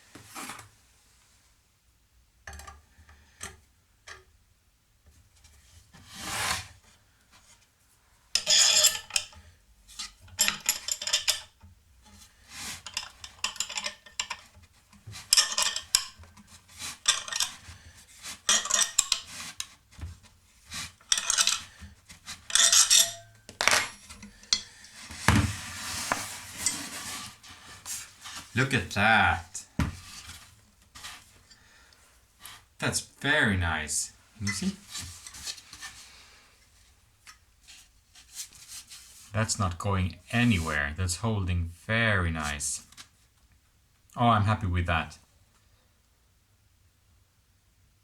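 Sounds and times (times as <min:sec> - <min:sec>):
metal rasping and clinking: 0:08.4 - 0:11.6, 0:12.7 - 0:14.6, 0:15.2 - 0:19.8, 0:20.6 - 0:25.2, 0:26.0 - 0:28.8.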